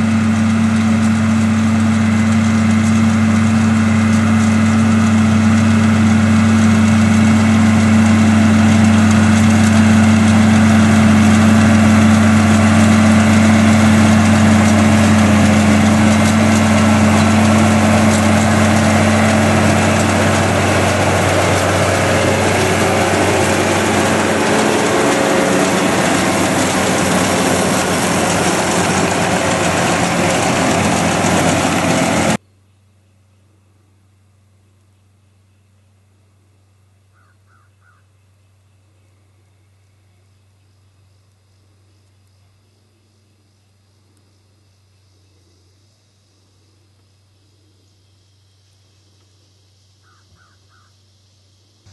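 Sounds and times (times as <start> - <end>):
tractor engine running: 0.0 - 32.4.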